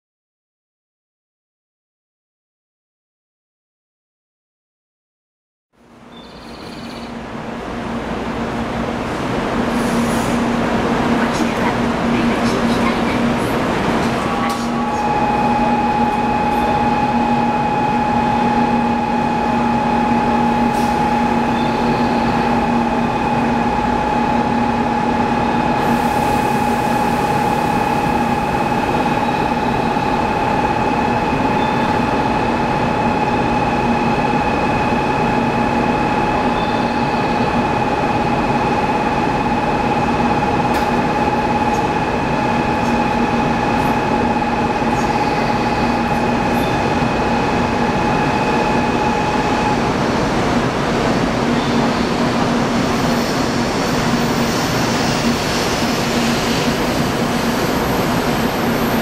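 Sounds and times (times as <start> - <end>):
train running with steady hums: 5.8 - 59.0.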